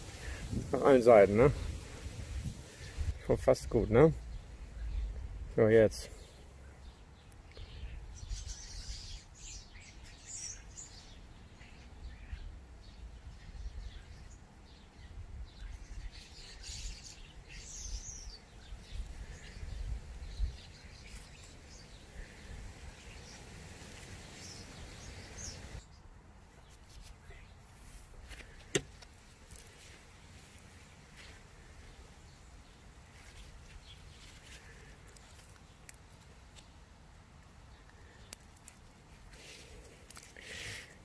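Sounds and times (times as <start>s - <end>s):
low outdoor rumble: 0.0s - 7.0s
birds chirping: 0.0s - 26.1s, 28.4s - 35.9s.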